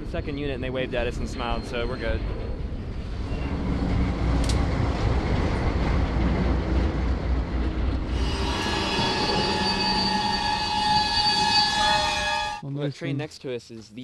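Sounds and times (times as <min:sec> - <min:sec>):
train wheels squealing: 0:00.0 - 0:04.1, 0:08.1 - 0:12.6
freight train wheels rumbling: 0:00.0 - 0:12.6.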